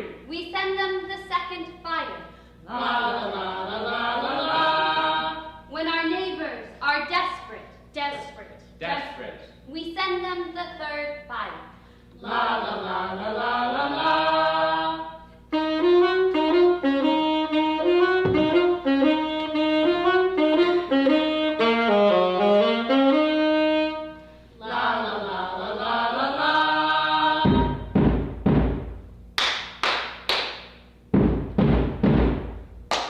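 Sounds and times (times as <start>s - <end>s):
saxophone slow melody: 15.5s - 24.5s
heavy low thumps: 17.8s - 20.6s, 27.4s - 29.4s, 31.1s - 32.9s.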